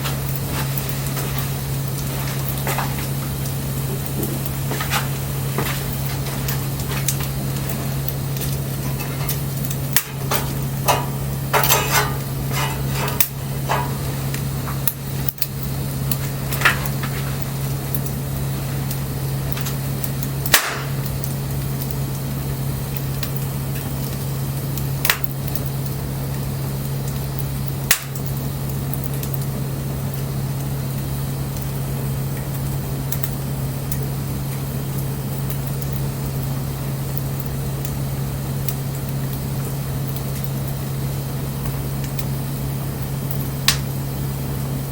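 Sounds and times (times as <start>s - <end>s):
steady low hum: 0.0s - 44.9s
wood fire crackling and popping: 0.0s - 44.9s.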